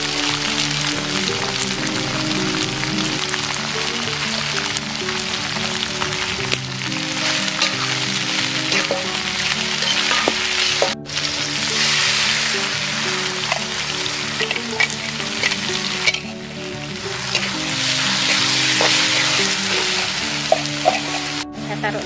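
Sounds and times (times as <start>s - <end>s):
vegetables sizzling in wok: 0.0s - 21.4s
metal spatula scraping wok: 13.4s - 16.4s, 17.1s - 21.3s.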